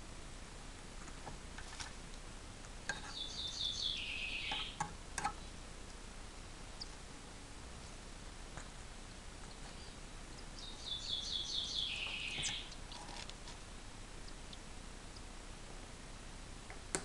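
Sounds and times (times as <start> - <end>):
young bird chirping: 3.0 - 4.8, 9.5 - 12.9.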